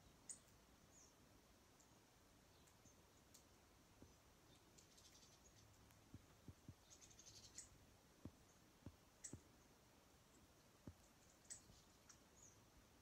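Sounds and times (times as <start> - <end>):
finches chirping: 0.0 - 1.2, 4.0 - 5.8, 6.7 - 9.7, 10.3 - 12.6.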